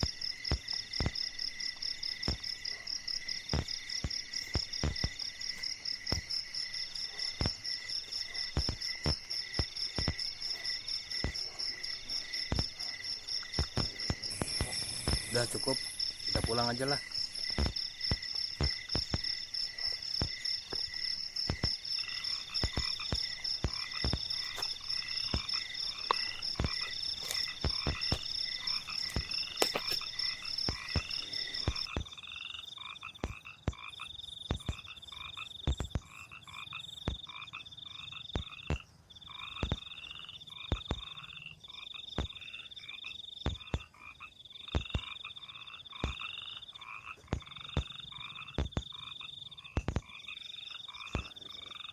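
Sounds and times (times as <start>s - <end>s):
fast-pulsing insect trill: 0.0s - 33.9s
frogs croaking in chorus: 0.0s - 51.9s
sharp clicks and knocks: 17.5s - 21.8s, 49.8s - 50.2s.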